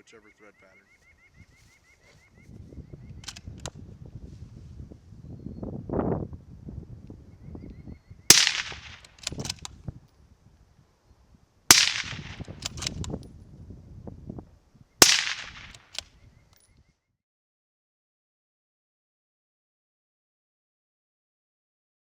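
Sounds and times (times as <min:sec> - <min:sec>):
small clicks: 0:03.2 - 0:03.8, 0:08.9 - 0:09.8, 0:15.4 - 0:16.7
suppressed rifle shots with echo: 0:08.3 - 0:09.6, 0:11.7 - 0:13.0, 0:15.0 - 0:16.0.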